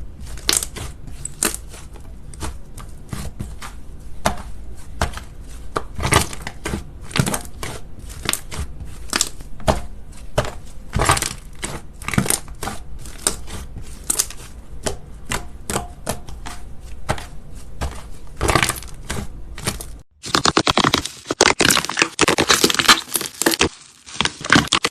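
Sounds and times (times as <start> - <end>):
slime clicking and crackling: 18.4 - 24.9.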